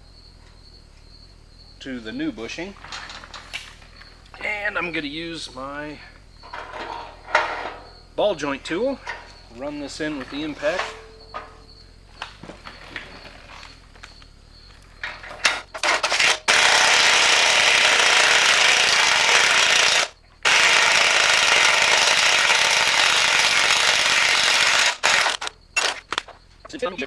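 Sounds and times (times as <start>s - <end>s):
impact wrench hammering: 15.4s - 26.1s.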